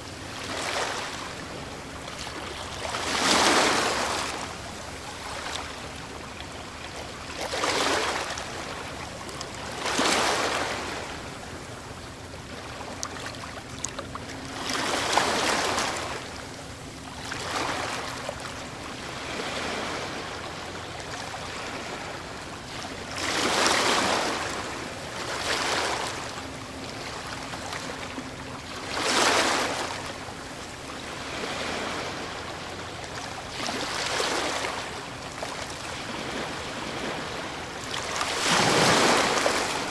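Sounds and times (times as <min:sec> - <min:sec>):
surf washing: 0:00.0 - 0:11.8, 0:14.2 - 0:16.5, 0:17.2 - 0:39.9
waves crashing: 0:02.8 - 0:04.6, 0:23.1 - 0:26.6, 0:31.0 - 0:32.5, 0:33.6 - 0:35.2, 0:35.9 - 0:39.9.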